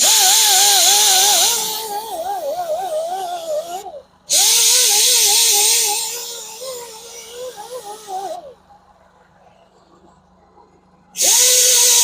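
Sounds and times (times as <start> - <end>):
grinder whining: 0.0 - 8.7.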